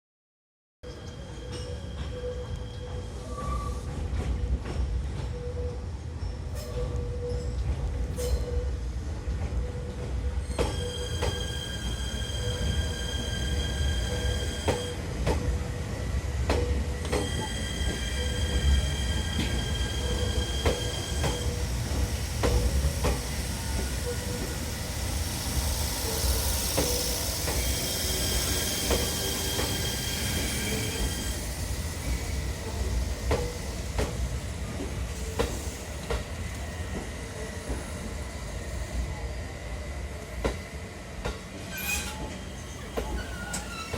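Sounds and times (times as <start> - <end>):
train wheels squealing: 0.8 - 15.6, 16.5 - 35.9, 41.5 - 43.9
train rumble: 1.0 - 43.9.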